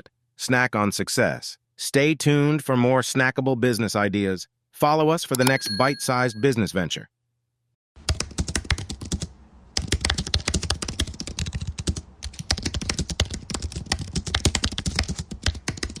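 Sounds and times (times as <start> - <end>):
rapid irregular clicking: 8.0 - 16.0.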